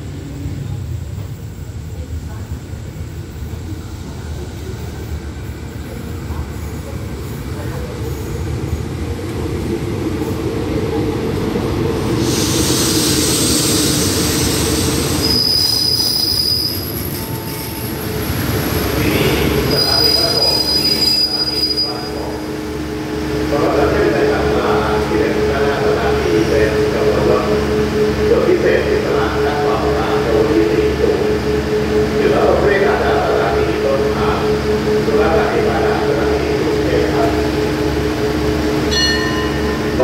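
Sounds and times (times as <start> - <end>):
diesel train rumble: 0.0 - 40.0
train air hiss: 12.0 - 16.6
high-pitched brake squeal: 12.3 - 18.0, 19.2 - 22.4.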